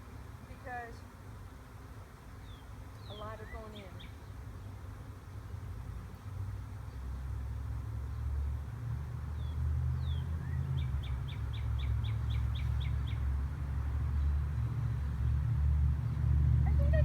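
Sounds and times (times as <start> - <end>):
songbird chirping: 2.3 - 4.8, 9.3 - 15.5
steady low rumble: 16.2 - 17.0.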